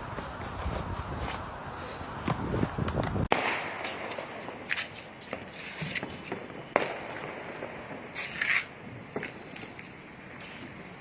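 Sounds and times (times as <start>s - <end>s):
fireworks cracking: 2.4s - 11.0s.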